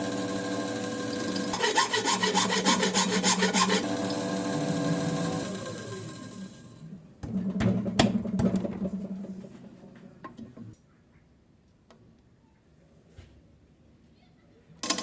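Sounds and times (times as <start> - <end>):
electric drill winding down: 3.6 - 6.6.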